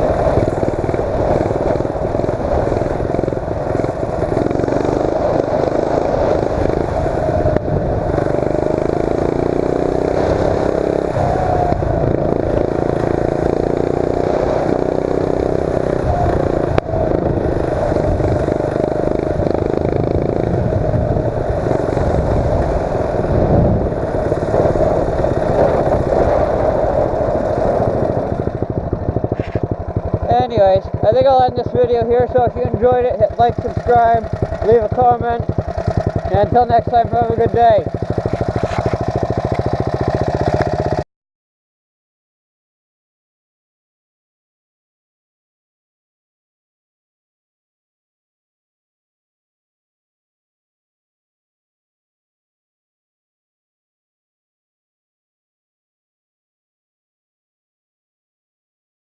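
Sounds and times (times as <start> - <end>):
mini bike engine revving: 0.0 - 41.0.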